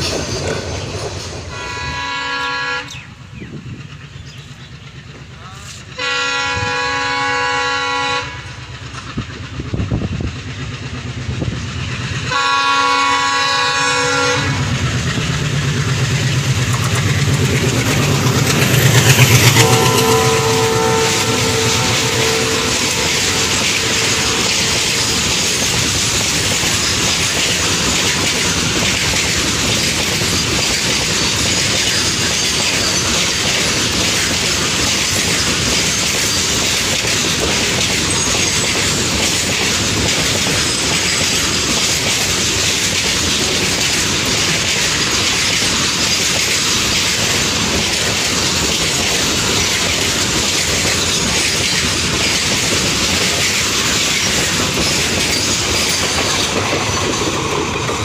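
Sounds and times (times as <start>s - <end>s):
steel wheels clattering over rails: 0.0s - 7.8s, 8.4s - 58.0s.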